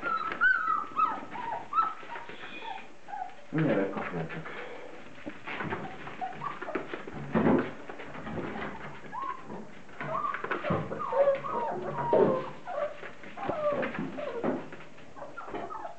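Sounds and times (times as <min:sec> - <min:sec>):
puppies whining and whimpering: 0:00.0 - 0:03.5, 0:05.6 - 0:07.0, 0:08.2 - 0:15.9.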